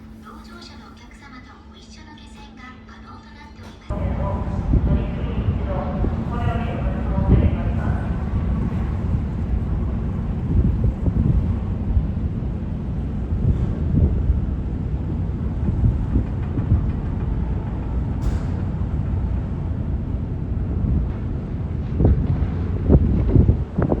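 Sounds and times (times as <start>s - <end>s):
moving vehicle rumble: 3.9s - 24.0s.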